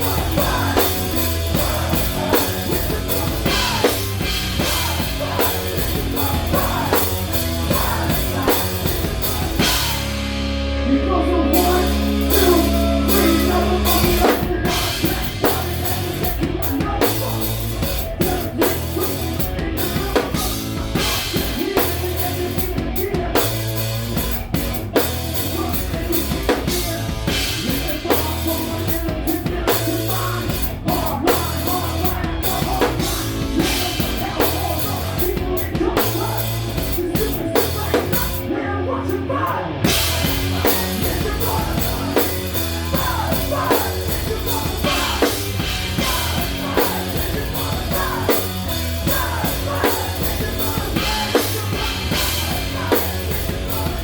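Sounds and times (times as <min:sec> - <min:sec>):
rock band playing live: 0:00.0 - 0:54.0
drum kit hits: 0:11.6 - 0:17.0.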